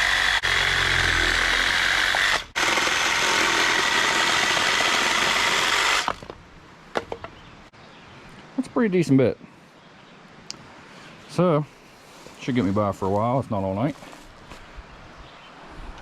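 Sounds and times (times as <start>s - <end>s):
power saw cutting wood: 0.0s - 6.2s.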